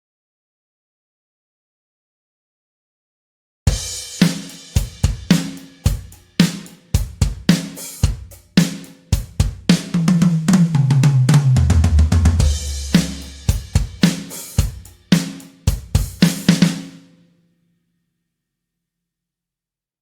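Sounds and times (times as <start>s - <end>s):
tom drum fill: 3.7s - 16.9s
acoustic drum kit groove: 3.7s - 17.0s.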